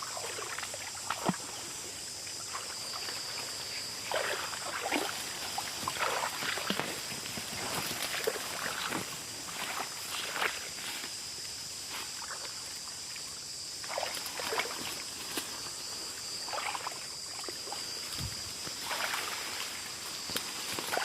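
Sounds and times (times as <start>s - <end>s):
footsteps through wet vegetation: 0.0s - 13.2s, 13.8s - 21.0s
insects droning: 0.0s - 21.0s.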